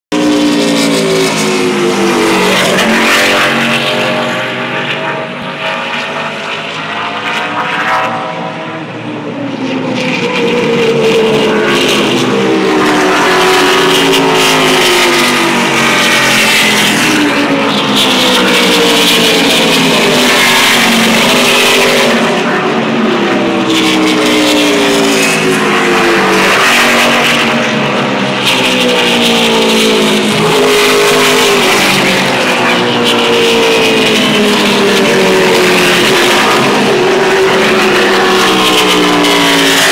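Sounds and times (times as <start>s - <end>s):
race trucks passing at speed: 0.1s - 39.9s.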